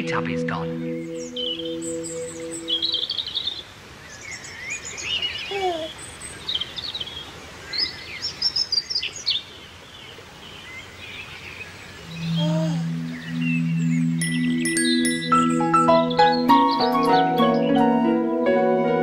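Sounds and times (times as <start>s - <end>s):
low downward-sliding bird note: 0.0s - 3.0s, 12.0s - 16.9s
birds chirping and trilling: 0.0s - 18.4s.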